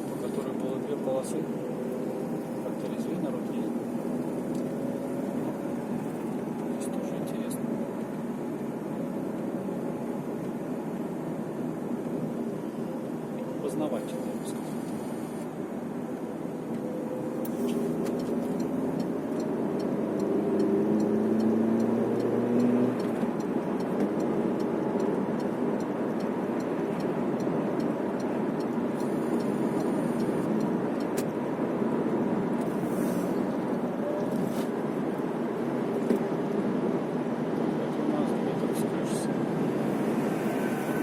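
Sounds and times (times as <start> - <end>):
car engine: 0.0 - 41.0
road and tyre noise: 0.0 - 41.0.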